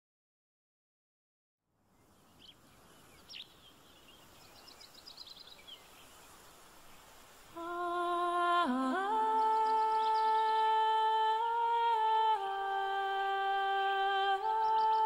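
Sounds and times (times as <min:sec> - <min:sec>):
bird chirping trill: 0:01.9 - 0:07.2, 0:09.2 - 0:10.8, 0:14.3 - 0:15.0
bird chirps: 0:01.9 - 0:07.5, 0:09.2 - 0:11.0, 0:14.2 - 0:15.0.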